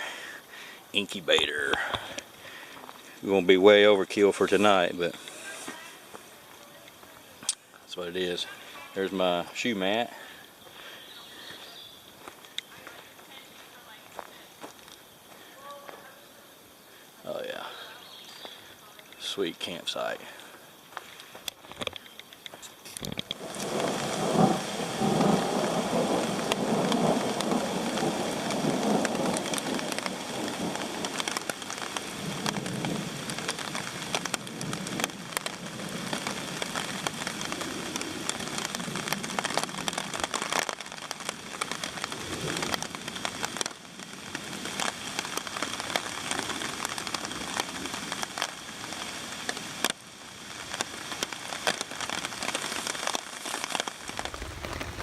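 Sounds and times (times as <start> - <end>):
raindrops striking close by: 0.0 - 55.0
steady rain falling: 0.0 - 55.0
thunder rumbling low: 23.4 - 31.3, 54.0 - 55.0.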